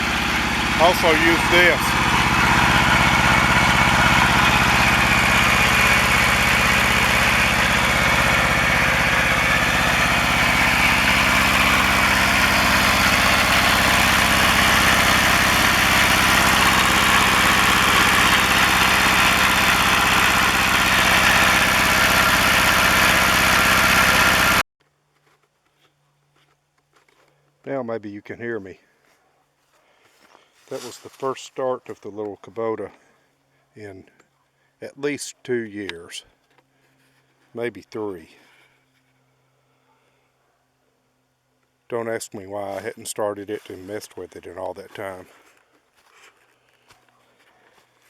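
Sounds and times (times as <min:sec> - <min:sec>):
diesel tractor engine idling: 0:00.0 - 0:24.6.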